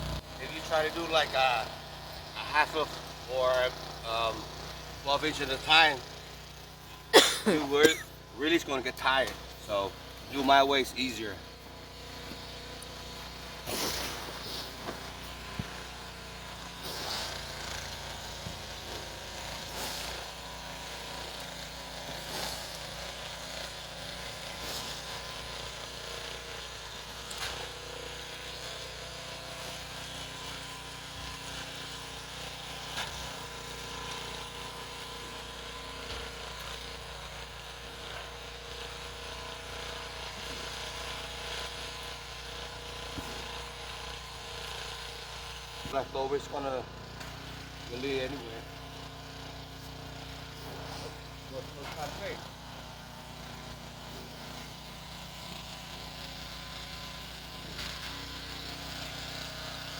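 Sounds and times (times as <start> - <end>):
snow shovel scraping snow: 0.0 - 27.8, 39.6 - 59.8
engine-like hum: 0.0 - 59.9.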